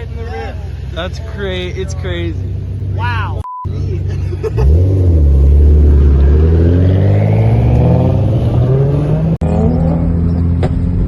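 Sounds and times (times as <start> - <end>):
car engine accelerating: 3.7 - 11.0.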